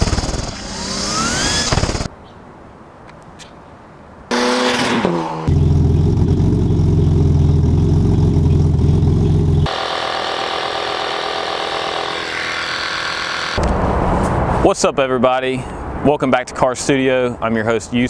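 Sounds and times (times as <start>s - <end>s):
car exhaust idling: 5.5s - 13.6s
air compressor whine: 5.6s - 13.6s.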